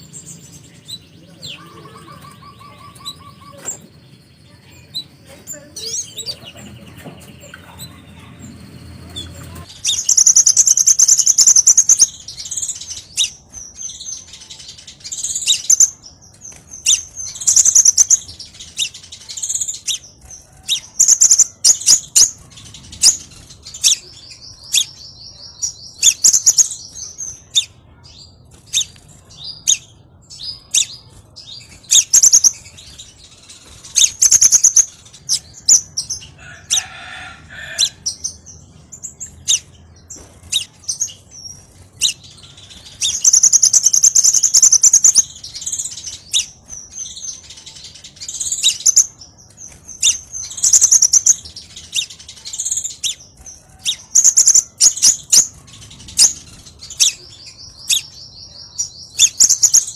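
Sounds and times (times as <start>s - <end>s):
buzzy bird trill: 0.0s - 59.9s
songbird chirping and twittering: 0.0s - 59.9s.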